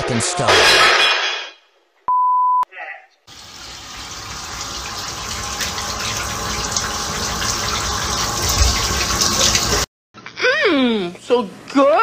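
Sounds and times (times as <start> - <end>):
running water gushing: 3.3 - 9.9.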